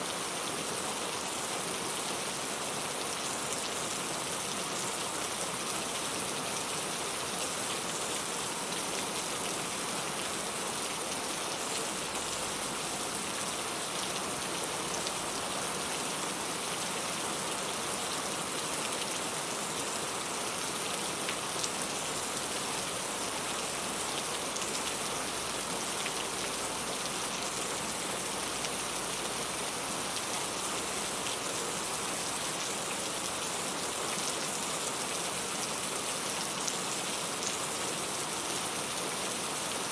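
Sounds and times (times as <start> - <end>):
rain pattering on a surface: 3.1 - 17.0, 17.6 - 39.9.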